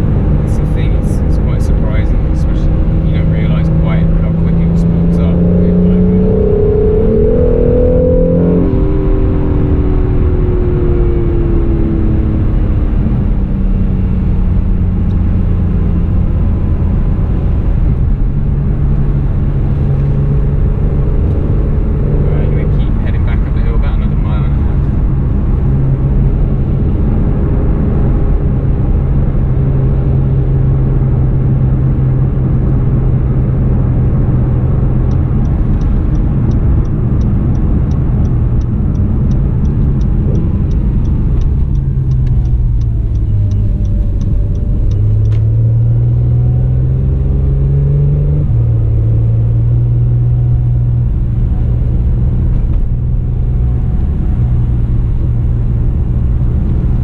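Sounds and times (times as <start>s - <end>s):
car engine heard from cabin: 0.0s - 57.0s
fast regular ticking: 35.1s - 45.3s.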